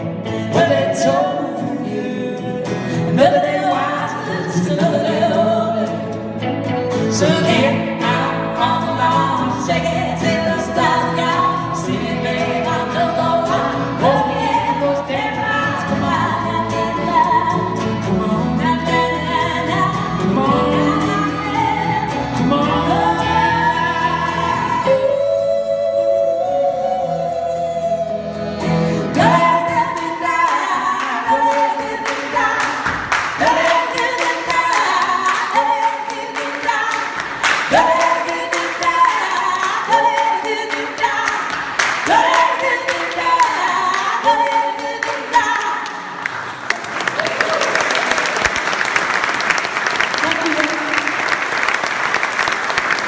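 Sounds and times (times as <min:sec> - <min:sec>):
folk band playing: 0:04.6 - 0:35.2
voices singing harmonies: 0:07.1 - 0:49.0
hand claps: 0:30.5 - 0:53.0.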